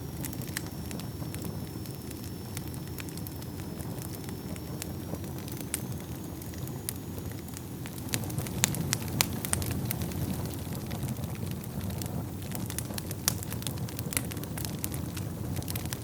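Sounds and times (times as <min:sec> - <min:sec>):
fire flames rumbling: 0:00.0 - 0:16.0
logs crackling and popping: 0:00.0 - 0:16.0.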